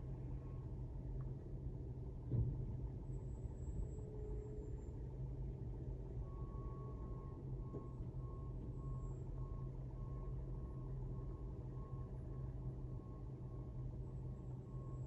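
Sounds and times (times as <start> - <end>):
truck reverse alarm beeping: 6.2 - 15.0.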